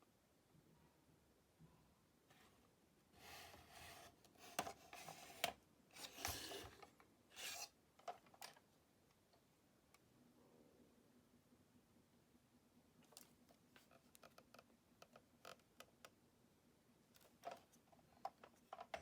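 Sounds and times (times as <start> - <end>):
rubbing and scraping handling noise: 2.3 - 8.7.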